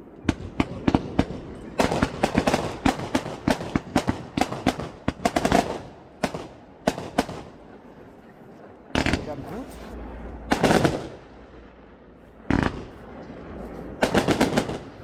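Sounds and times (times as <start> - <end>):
fireworks cracking and banging: 0.2 - 7.8, 9.0 - 9.9, 10.5 - 11.7, 12.5 - 15.0.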